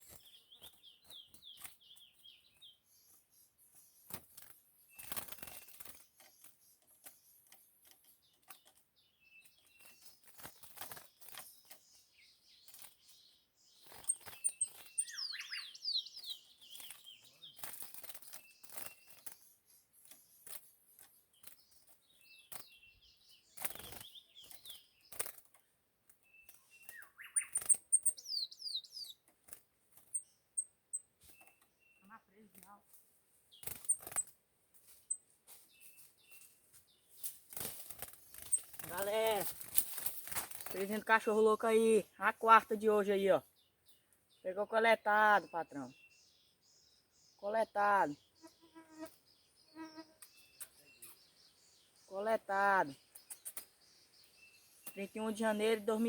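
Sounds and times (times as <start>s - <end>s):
wing fluttering: 0.0s - 2.6s, 3.7s - 41.3s, 48.4s - 52.0s, 52.8s - 56.0s
songbirds chirping: 0.0s - 56.0s
clicks and rustles: 37.2s - 40.9s.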